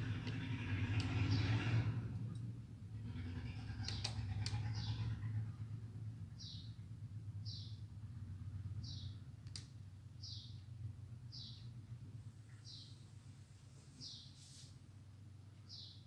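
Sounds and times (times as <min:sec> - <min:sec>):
low electrical hum: 0:00.0 - 0:16.0
faint bird chirping: 0:06.3 - 0:09.3, 0:10.2 - 0:16.0.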